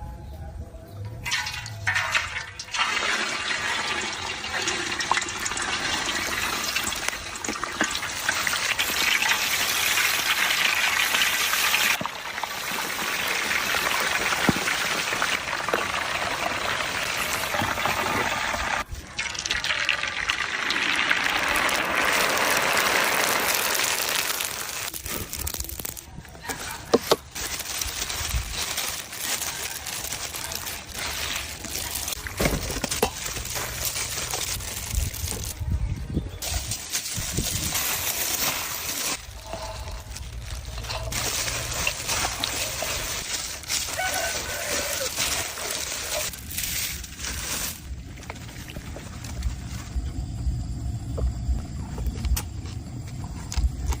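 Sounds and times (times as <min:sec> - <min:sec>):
running water pouring: 0:01.2 - 0:26.0, 0:40.1 - 0:47.9.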